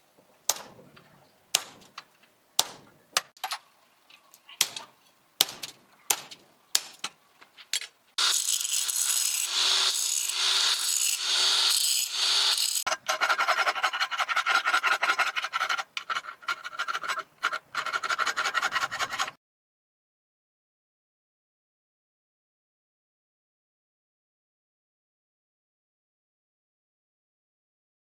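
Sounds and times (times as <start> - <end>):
abrasive rubbing on steel: 8.2 - 19.3
file rasping on axe edge: 8.2 - 19.4.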